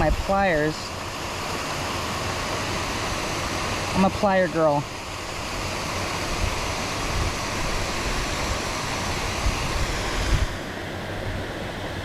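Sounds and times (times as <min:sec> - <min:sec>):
wind buffeting microphone: 0:05.4 - 0:12.0.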